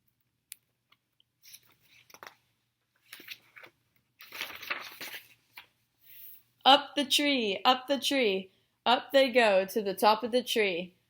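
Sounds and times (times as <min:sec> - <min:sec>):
paper page rustling: 0:01.4 - 0:05.8.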